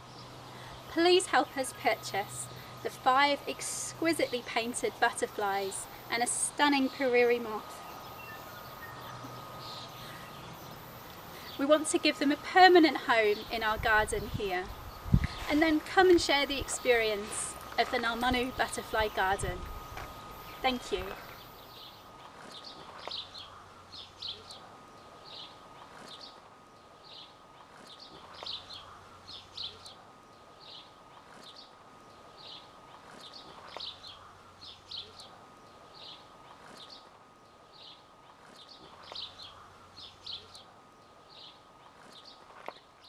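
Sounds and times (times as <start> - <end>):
birds chirping: 0.0 - 42.4
faint steady high tone: 0.5 - 22.1.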